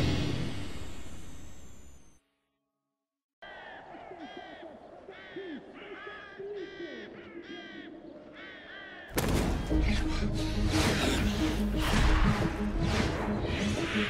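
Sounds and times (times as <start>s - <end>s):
harsh bird caws: 3.4s - 10.1s.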